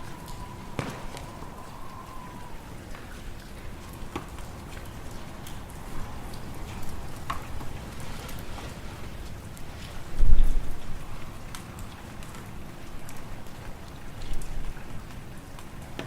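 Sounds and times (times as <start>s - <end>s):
faint high whistle: 0.0s - 4.8s
wood fire crackling: 0.0s - 15.9s
low rumble of wind: 0.0s - 16.0s.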